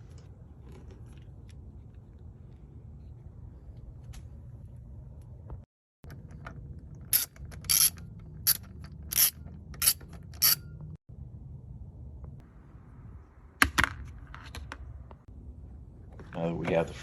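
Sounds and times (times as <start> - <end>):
low steady hum: 0.0 - 17.0
ratchet wrench clicking: 7.1 - 10.6.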